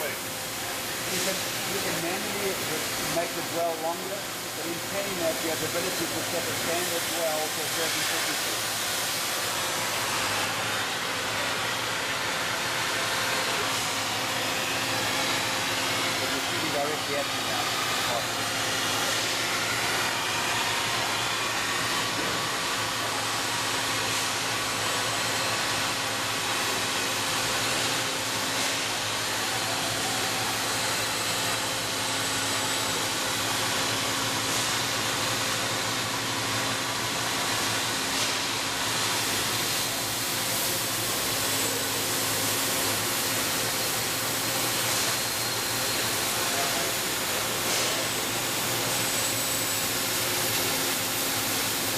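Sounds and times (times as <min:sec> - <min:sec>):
cutting torch hissing: 0:00.0 - 0:11.0, 0:13.0 - 0:20.2, 0:39.0 - 0:51.9.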